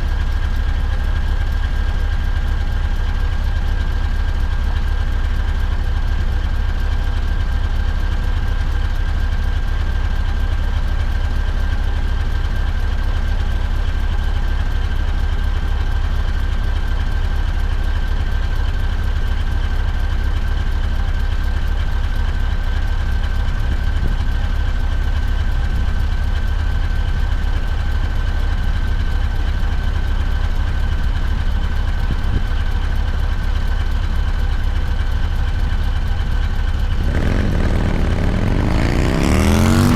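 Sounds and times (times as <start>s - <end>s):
diesel truck engine running: 22.0s - 39.9s.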